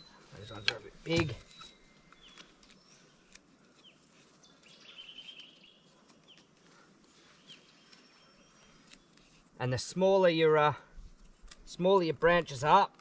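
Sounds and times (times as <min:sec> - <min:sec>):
faint bird chirps: 0:00.0 - 0:09.4.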